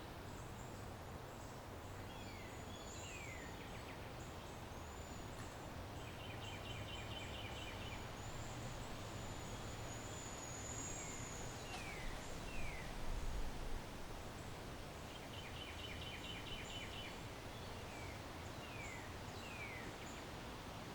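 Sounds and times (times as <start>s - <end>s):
small birds chirping: 0.0s - 13.4s, 14.4s - 20.4s.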